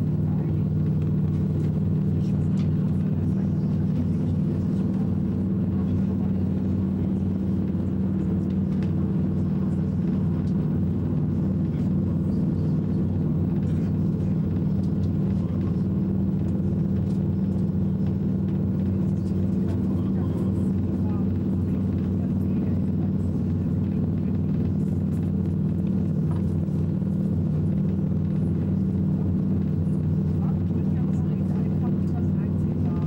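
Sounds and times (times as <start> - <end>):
high-speed train rumbling: 0.0 - 33.0.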